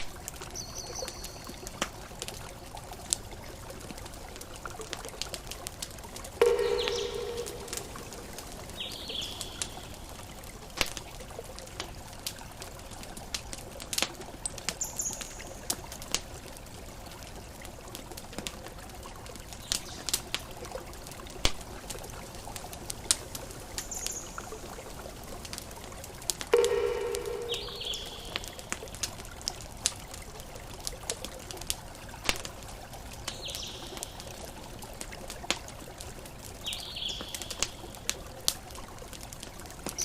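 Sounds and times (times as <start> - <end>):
water-like rush: 0.0 - 14.8
campfire crackling: 0.0 - 40.0
ringing chime-like tone: 6.4 - 8.7, 26.6 - 28.7
high bird chirps: 6.4 - 10.1, 26.6 - 28.7.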